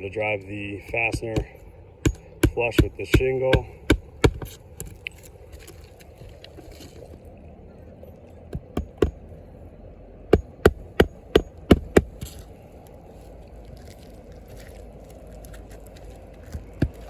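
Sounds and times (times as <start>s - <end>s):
hammer striking nails: 0.9s - 4.6s, 8.6s - 9.2s, 10.3s - 12.4s.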